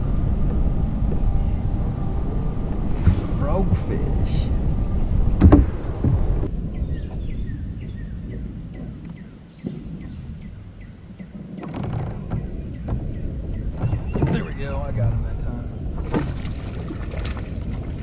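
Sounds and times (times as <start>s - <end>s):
low rumbling: 0.0s - 18.0s
small bird chirping: 6.7s - 11.7s.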